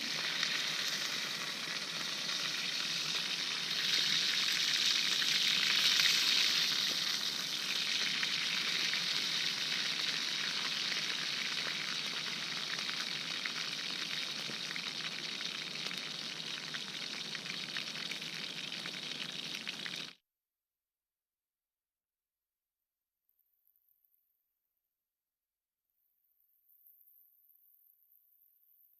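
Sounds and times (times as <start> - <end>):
meat sizzling in a frying pan: 0.0 - 20.2.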